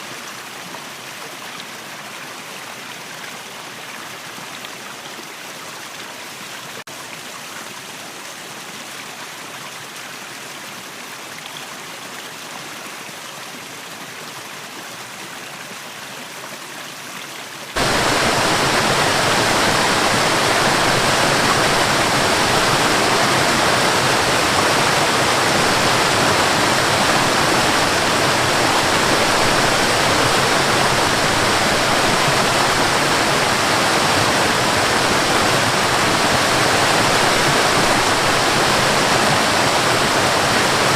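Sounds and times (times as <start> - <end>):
waterfall rushing: 17.8 - 40.9.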